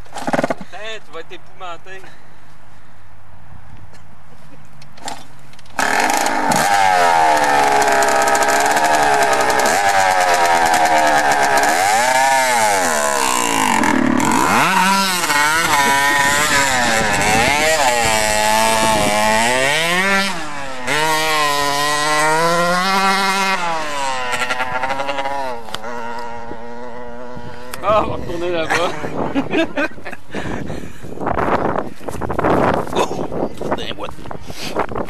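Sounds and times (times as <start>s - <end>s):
dirt bike engine revving: 5.0s - 29.8s.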